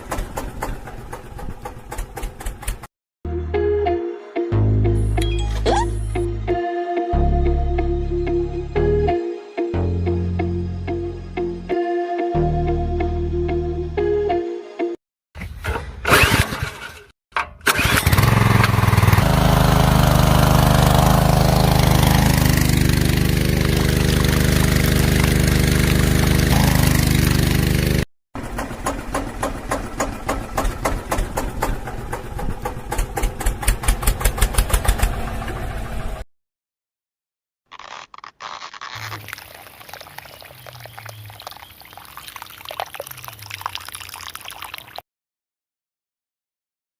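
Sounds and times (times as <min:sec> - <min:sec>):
small diesel engine running: 0:00.0 - 0:02.9, 0:17.6 - 0:36.2
water pouring and splashing: 0:23.3 - 0:27.2, 0:38.8 - 0:45.0.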